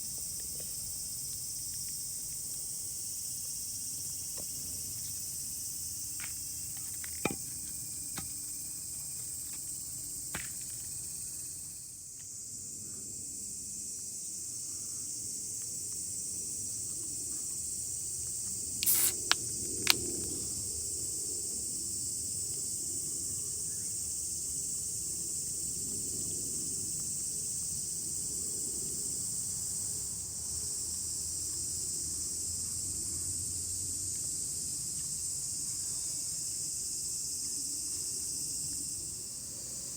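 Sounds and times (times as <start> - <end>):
high-pitched insect chorus: 0.0 - 39.9
sharp clicks and snaps: 18.8 - 20.2.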